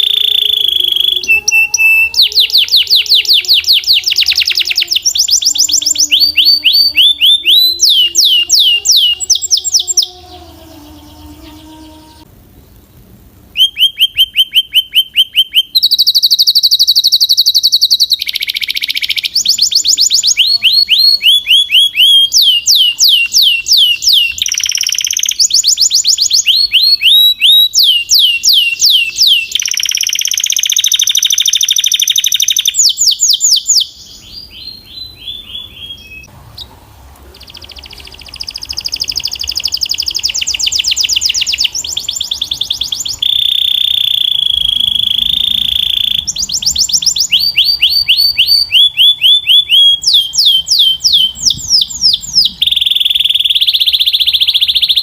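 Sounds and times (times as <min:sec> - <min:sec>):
canary singing trills: 0:00.0 - 0:12.8, 0:13.6 - 0:55.0.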